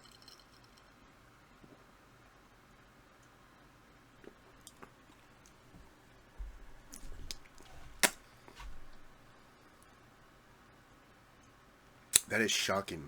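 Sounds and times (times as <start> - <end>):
handling bumps: 6.4 - 9.3.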